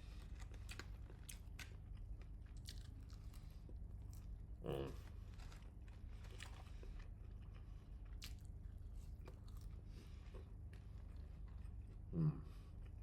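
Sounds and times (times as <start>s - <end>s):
chewing crispy fries: 0.0s - 13.0s.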